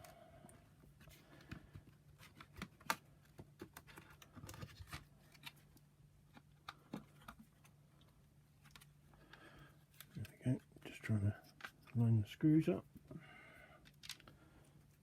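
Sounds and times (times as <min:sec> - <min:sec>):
plastic parts clicking: 0:13.8 - 0:14.4.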